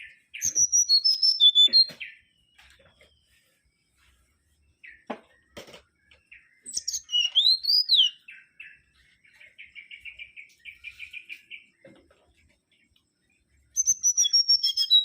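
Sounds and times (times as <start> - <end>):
bird singing whistled phrases: 0.0 - 2.2, 6.5 - 8.5, 13.7 - 15.0.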